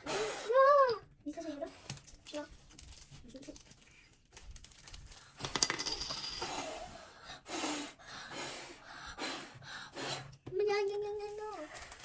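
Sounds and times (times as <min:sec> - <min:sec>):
small hard object dropping and clinking: 0:04.6 - 0:06.6.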